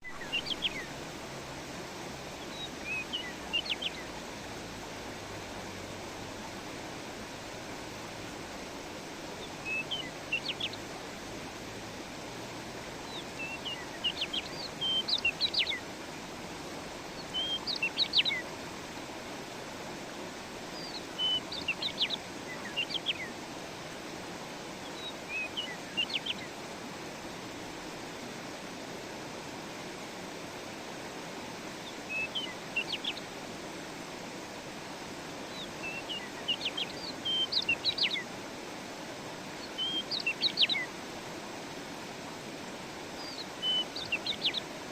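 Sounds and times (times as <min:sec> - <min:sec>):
songbird chirping: 0:00.0 - 0:01.0, 0:02.3 - 0:04.6, 0:09.4 - 0:11.0, 0:13.0 - 0:15.9, 0:17.0 - 0:18.5, 0:20.7 - 0:23.4, 0:24.8 - 0:26.6, 0:31.8 - 0:33.4, 0:35.4 - 0:38.3, 0:39.5 - 0:41.0, 0:43.2 - 0:44.8
stream water flowing: 0:00.0 - 0:44.9.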